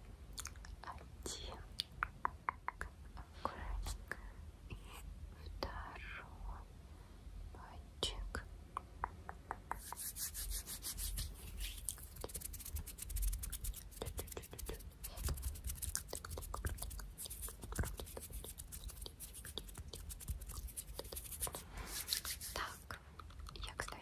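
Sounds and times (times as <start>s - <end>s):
hands rubbing together: 9.7s - 22.8s.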